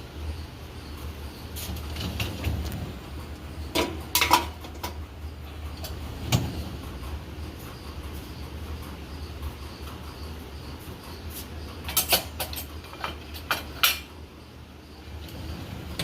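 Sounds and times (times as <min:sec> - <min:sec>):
dishes and racks clinking: 0:01.6 - 0:08.7, 0:11.3 - 0:14.1.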